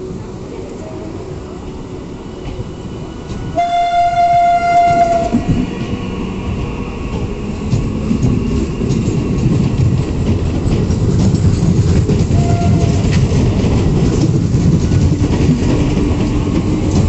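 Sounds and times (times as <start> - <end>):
wheels rumbling over rail joints: 2.4 - 17.0
train horn blast: 3.6 - 5.5, 12.4 - 13.0.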